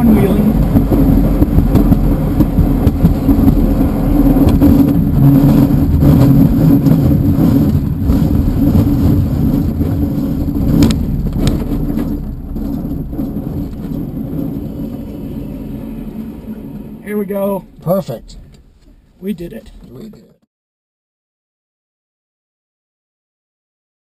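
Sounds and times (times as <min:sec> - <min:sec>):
wheel rumbling on runway: 0:00.0 - 0:19.0
sharp knocks: 0:00.6 - 0:14.2.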